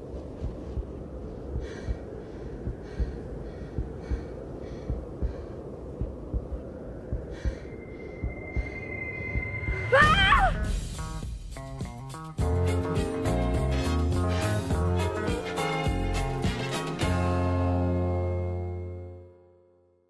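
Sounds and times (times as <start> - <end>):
heartbeat: 0.0 - 12.6
low rumble: 0.0 - 18.9
woman breathing heavily: 0.3 - 8.9.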